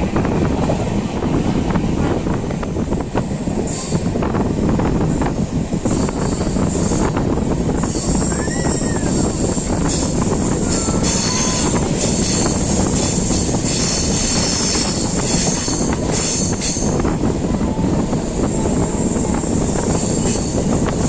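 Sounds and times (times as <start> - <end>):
train wheels rumbling on rails: 0.0 - 21.0
high-pitched wheel squeal: 7.8 - 12.5.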